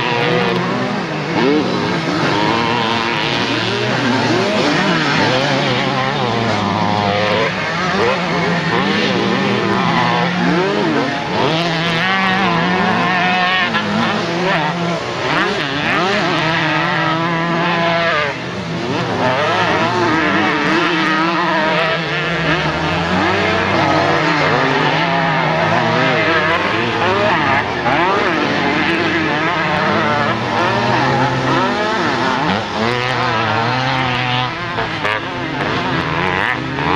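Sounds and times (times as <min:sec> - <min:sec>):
motorcycle engines revving: 0:00.0 - 0:36.9.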